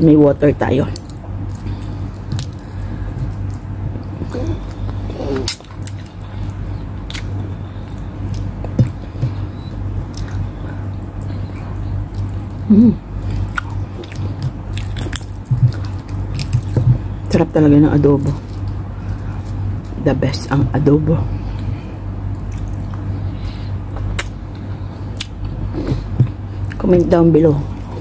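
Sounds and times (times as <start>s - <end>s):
steady low hum: 0.0s - 28.0s
chewing and biting: 1.0s - 17.0s, 22.3s - 26.9s.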